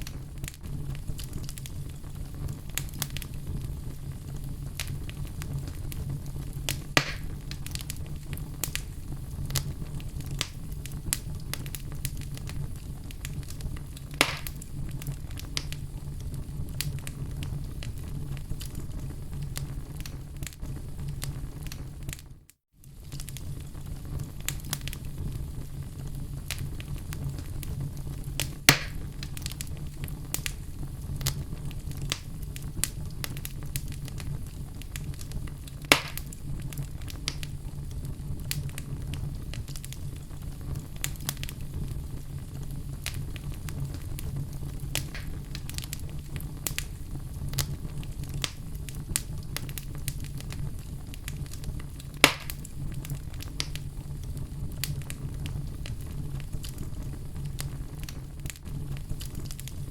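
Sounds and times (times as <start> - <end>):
fire crackling: 0.0 - 59.9
loud pops: 6.7 - 7.4, 14.1 - 14.6, 28.7 - 29.0, 35.9 - 36.3, 45.0 - 45.4, 52.2 - 52.7.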